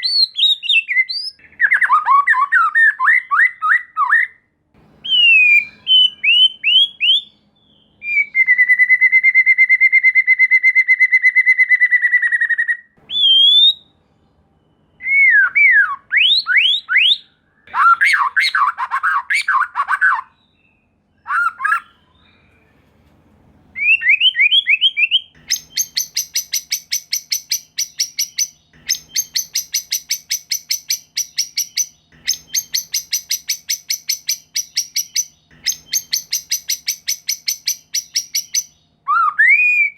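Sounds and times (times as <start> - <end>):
bird singing whistled notes: 0.0 - 4.4, 5.0 - 14.0, 14.6 - 18.7, 23.8 - 39.9
harsh rattling bird notes: 25.3 - 38.7.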